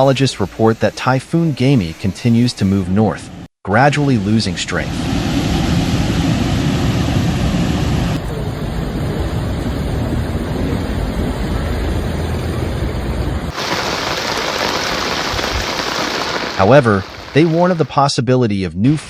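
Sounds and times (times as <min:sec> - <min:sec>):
wind: 0:03.0 - 0:19.0
rain: 0:08.0 - 0:17.9.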